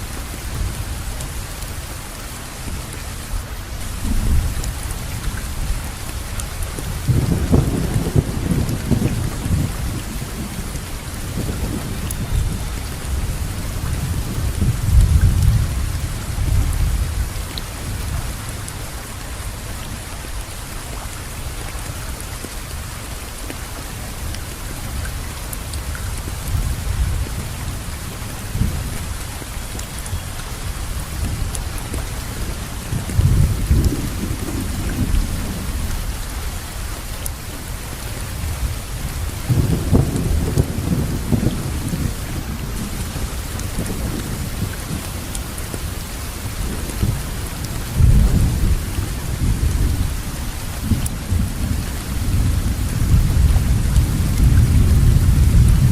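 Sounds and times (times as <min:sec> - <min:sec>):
steady rainfall: 0:00.0 - 0:55.9
rolling thunder rumbles: 0:06.8 - 0:18.4, 0:38.5 - 0:45.3, 0:46.5 - 0:55.9.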